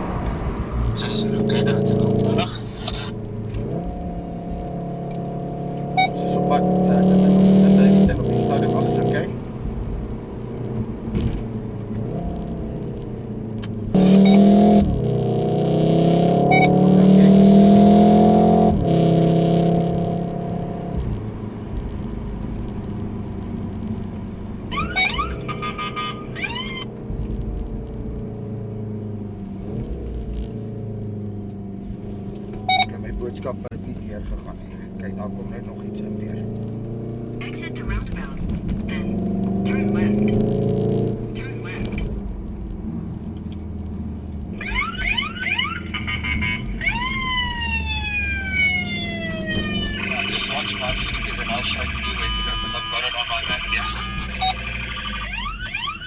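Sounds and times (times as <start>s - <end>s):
car engine and road noise: 0.0s - 56.0s
emergency vehicle siren: 16.3s - 18.8s, 24.6s - 27.0s, 44.6s - 56.0s
warbling high tones: 24.7s - 26.9s, 46.8s - 56.0s.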